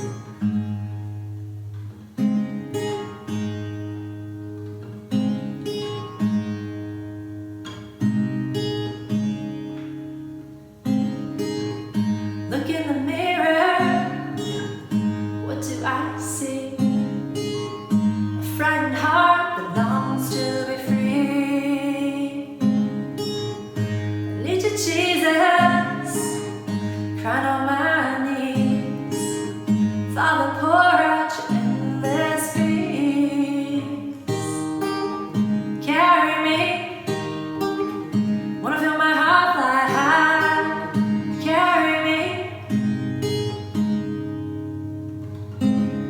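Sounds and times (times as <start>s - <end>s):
acoustic guitar: 0.0s - 46.0s
woman singing a slow song: 12.5s - 17.6s, 18.4s - 22.9s, 24.3s - 37.6s, 38.6s - 42.9s.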